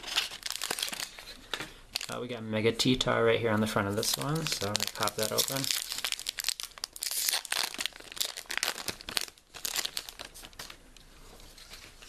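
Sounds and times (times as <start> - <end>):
foil wrapper tearing and crinkling: 0.0 - 1.3, 3.9 - 10.8.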